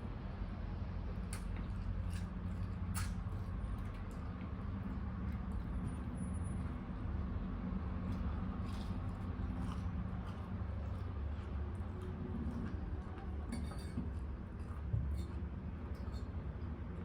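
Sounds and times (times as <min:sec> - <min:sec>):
steady low hum: 0:00.0 - 0:17.0
wet chewing clicks: 0:07.7 - 0:17.0.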